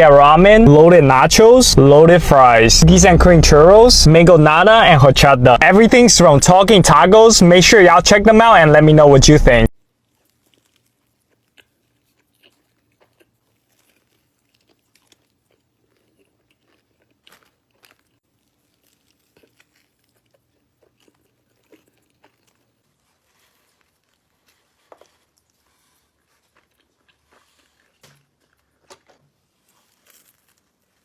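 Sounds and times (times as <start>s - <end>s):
person chewing food: 9.9s - 31.0s.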